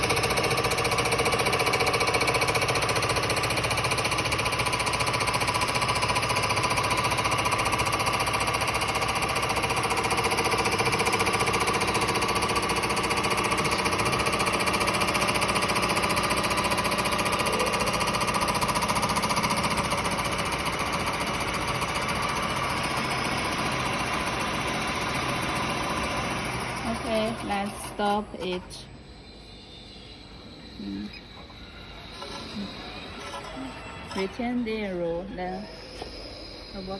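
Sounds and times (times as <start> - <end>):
milling machine rattling: 0.0 - 28.7, 31.3 - 36.9.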